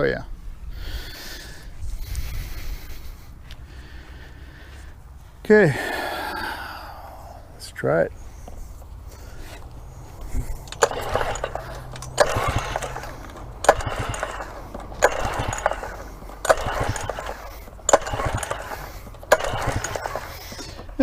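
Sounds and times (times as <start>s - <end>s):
pull-cord starter click and whir: 8.5s - 21.0s.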